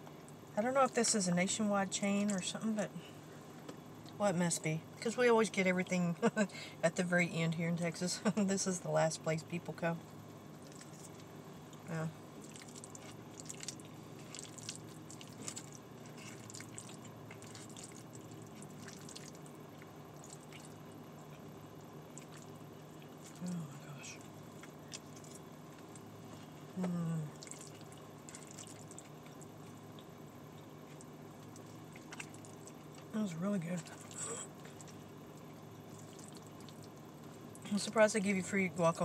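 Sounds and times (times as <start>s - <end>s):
car air conditioning hum: 0.0s - 39.0s
wet mouth clicks and chewing: 10.6s - 11.8s, 12.4s - 21.5s, 22.1s - 23.4s, 24.2s - 26.1s, 27.4s - 33.1s
person humming mmm: 26.8s - 27.4s.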